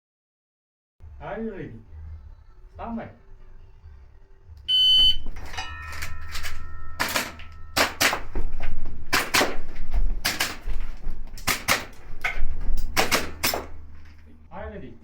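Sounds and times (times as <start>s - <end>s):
shot timer beep: 4.7s - 5.3s
ringing tone: 4.7s - 8.4s
airsoft pistol shots: 7.0s - 8.3s, 9.1s - 10.7s, 11.4s - 12.0s, 12.9s - 13.8s.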